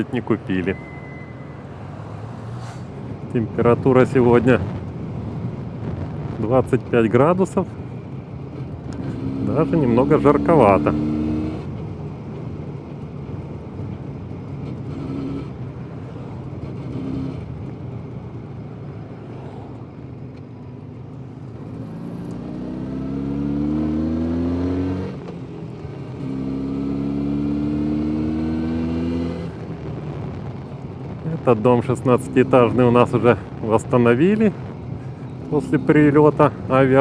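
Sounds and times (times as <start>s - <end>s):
motorcycle engine revving: 8.5s - 11.7s, 14.7s - 15.8s, 16.6s - 17.7s, 21.5s - 25.5s, 26.1s - 29.6s.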